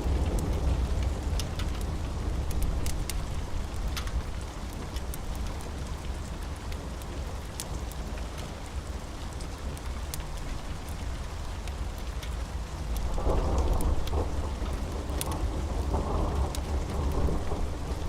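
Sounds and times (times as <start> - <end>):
deep thunder rumble: 0.0 - 3.8, 13.0 - 18.0
steady rain: 0.0 - 18.0
wood fire crackles: 0.0 - 18.0.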